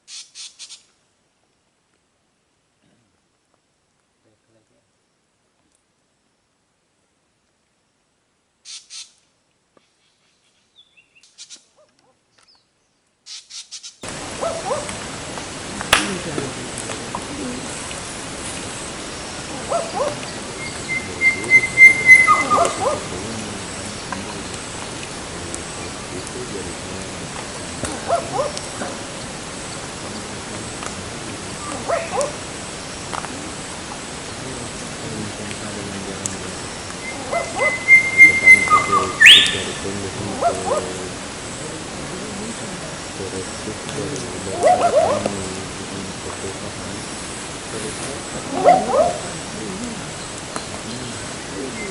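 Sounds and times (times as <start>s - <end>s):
harsh rasping bird calls: 8.7s - 9.1s, 13.3s - 35.1s, 36.0s - 41.6s, 44.4s - 45.3s
steady hiss: 13.3s - 51.9s
sudden rush of loud noise: 14.0s - 37.2s
bird chirps and whistles: 20.0s - 23.0s, 37.0s - 39.7s.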